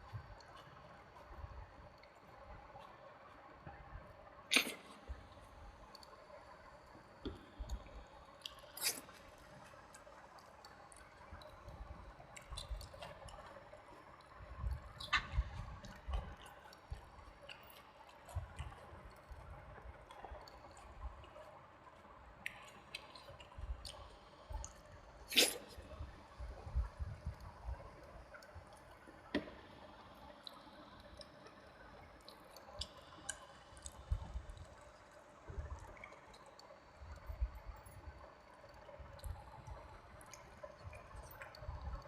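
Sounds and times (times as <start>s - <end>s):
wet chewing and mouth smacking: 32.3s - 34.6s.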